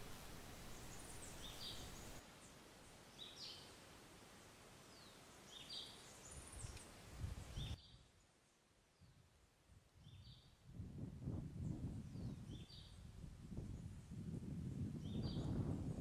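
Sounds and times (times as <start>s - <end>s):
small birds chirping: 0.0s - 3.8s, 4.9s - 8.4s, 11.6s - 13.1s
low hiss: 0.0s - 16.0s.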